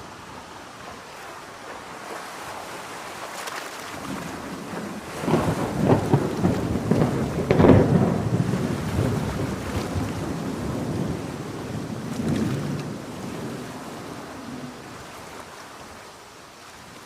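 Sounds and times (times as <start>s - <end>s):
heavy rain: 0.0s - 17.0s
thunderclap rumbling: 4.0s - 15.1s.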